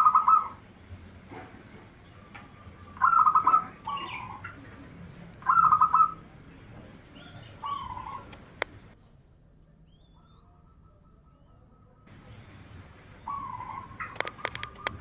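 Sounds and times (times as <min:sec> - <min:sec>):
doves cooing: 0:00.0 - 0:09.0, 0:09.8 - 0:15.0.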